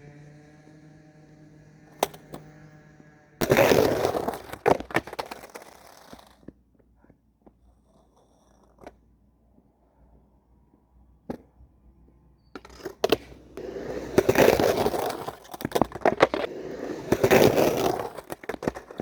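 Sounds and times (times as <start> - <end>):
skateboard coarse grind: 0.0 - 6.5, 12.6 - 19.0
skateboard rolling hum: 0.0 - 9.2, 12.6 - 19.0
skateboard clacks: 1.7 - 2.6, 3.4 - 7.6, 12.6 - 19.0.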